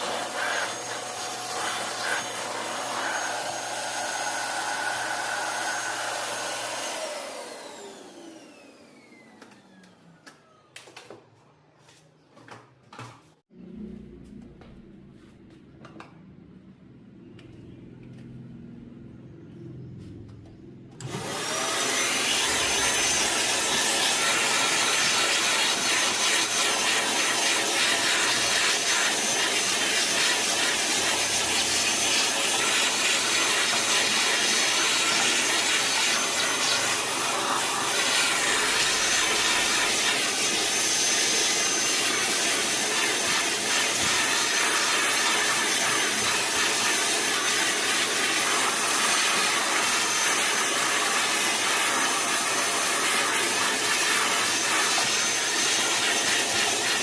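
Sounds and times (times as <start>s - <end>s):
air blower running: 0.0s - 10.0s, 20.9s - 57.0s.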